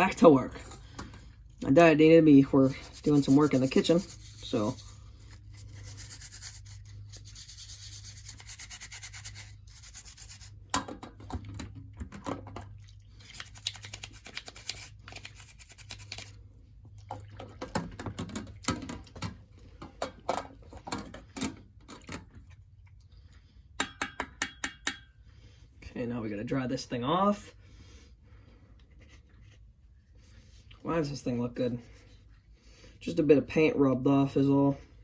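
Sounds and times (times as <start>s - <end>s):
brush scrubbing plastic: 1.9s - 10.6s, 13.2s - 16.4s.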